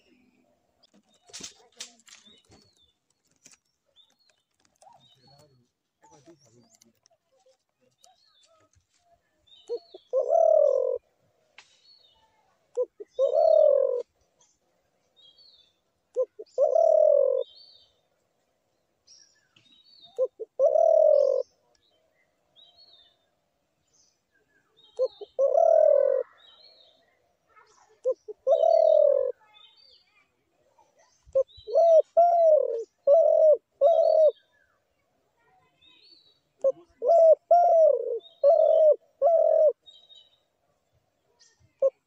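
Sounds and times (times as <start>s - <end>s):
small birds chirping: 0.0s - 42.0s
dove cooing: 9.7s - 11.0s, 12.8s - 14.1s, 16.1s - 17.6s, 20.0s - 21.6s, 25.0s - 26.4s, 27.9s - 29.4s, 31.3s - 34.5s, 36.6s - 39.8s.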